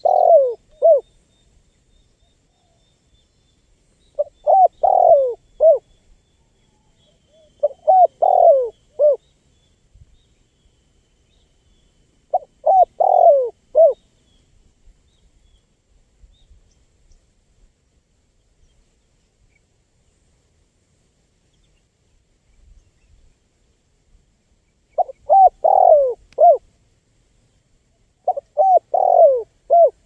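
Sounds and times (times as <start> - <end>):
dove cooing: 0.0 - 1.1, 4.2 - 5.8, 7.3 - 9.2, 12.3 - 14.0, 25.0 - 26.6, 28.2 - 30.0.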